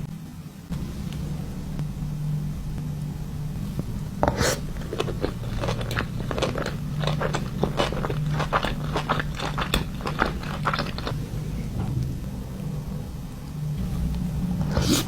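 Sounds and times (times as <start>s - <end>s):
steady low hum: 0.0s - 15.0s
crunchy bites and chewing: 4.2s - 11.4s.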